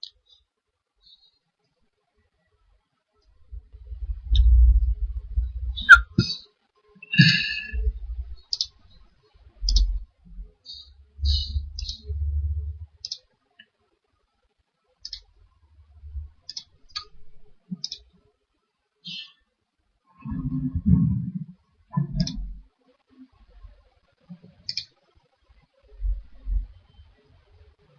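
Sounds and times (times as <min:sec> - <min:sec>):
computer mouse clicking: 0:15.0 - 0:15.3, 0:16.5 - 0:17.1, 0:17.8 - 0:18.0, 0:22.2 - 0:22.4, 0:24.6 - 0:25.0.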